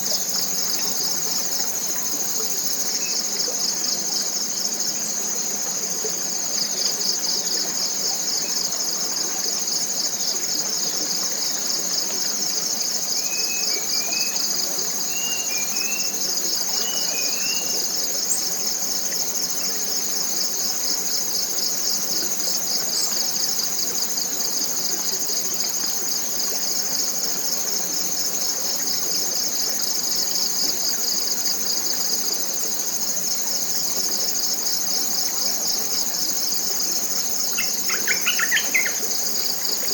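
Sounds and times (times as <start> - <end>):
forest insects buzzing: 0.0 - 39.9
bird chirping: 37.6 - 39.0.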